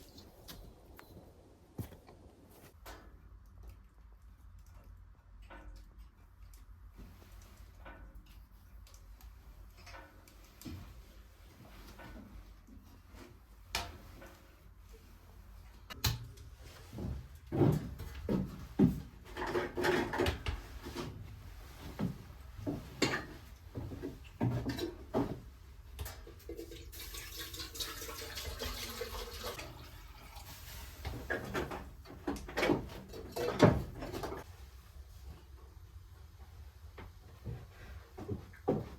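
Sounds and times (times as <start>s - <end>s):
objects knocking and clattering: 15.9s - 28.0s, 31.1s - 34.5s.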